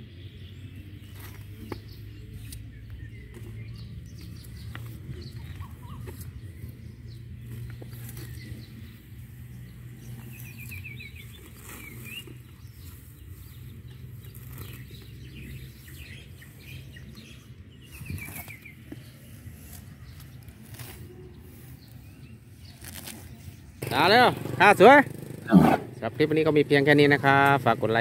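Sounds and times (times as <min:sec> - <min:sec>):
elephant tearing grass: 0:01.0 - 0:02.7, 0:04.3 - 0:24.0.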